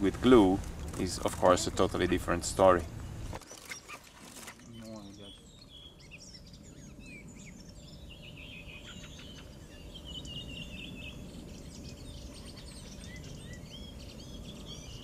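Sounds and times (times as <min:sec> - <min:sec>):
low outdoor rumble: 0:00.0 - 0:15.0
small birds chirping: 0:00.0 - 0:15.0.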